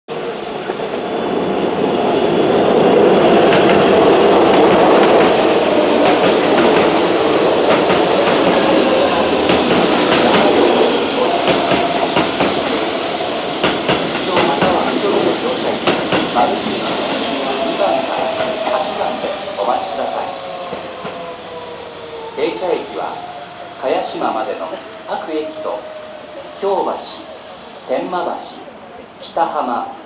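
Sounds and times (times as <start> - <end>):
electric train running noise: 0.1 - 29.2
wheels clacking over rail joints: 3.4 - 17.2.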